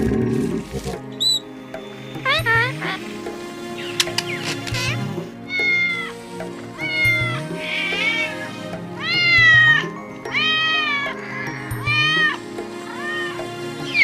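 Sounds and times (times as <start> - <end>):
background music: 0.0 - 14.0
cat meowing: 5.5 - 6.2, 6.8 - 14.0.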